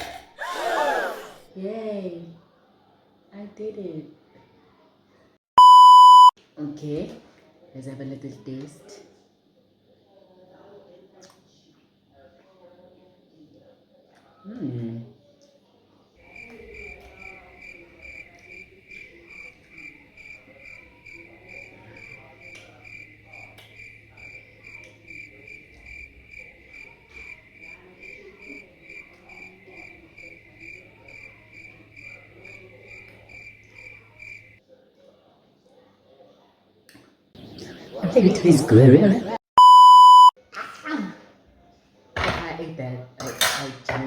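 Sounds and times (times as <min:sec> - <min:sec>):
brief falling vocal sound: 0:00.4 - 0:01.5
cricket chirping: 0:16.2 - 0:34.6.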